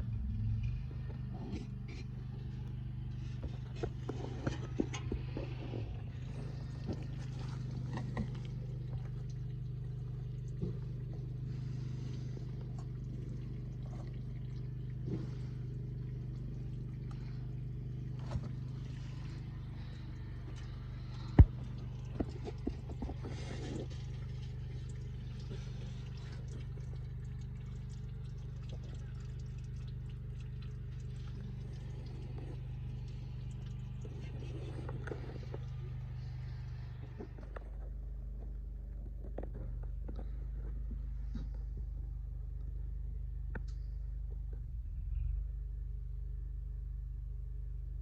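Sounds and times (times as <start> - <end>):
truck engine idling: 0.0 - 47.2.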